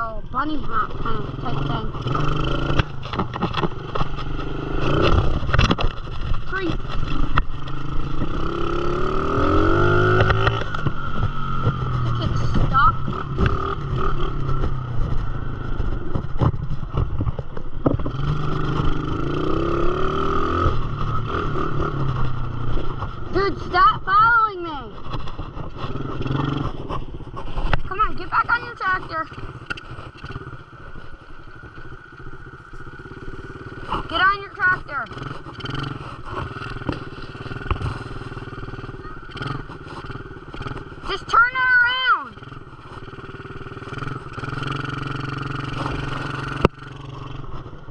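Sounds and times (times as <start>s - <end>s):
dirt bike motor running: 0.0s - 47.9s
sharp knocks and clatter: 2.0s - 8.5s, 10.0s - 19.2s.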